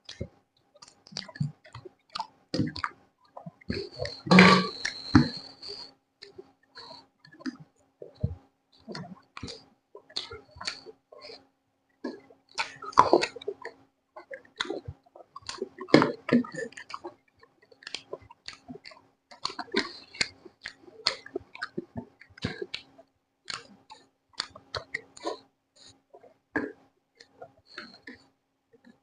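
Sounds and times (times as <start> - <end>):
faint steady hum: 2.8 - 8.9.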